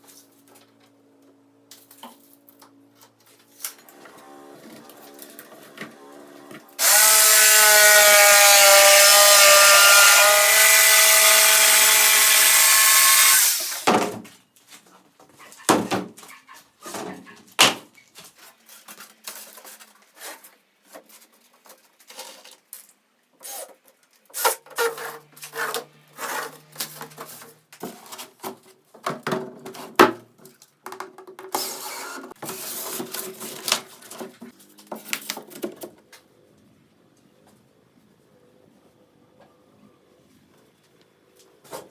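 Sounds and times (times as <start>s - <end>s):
power tool whining on wood: 3.9s - 13.9s.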